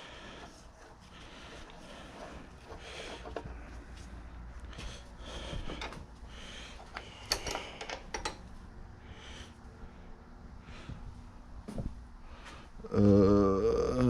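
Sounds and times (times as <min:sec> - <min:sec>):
metal tools clicking and clinking: 0:06.9 - 0:08.4.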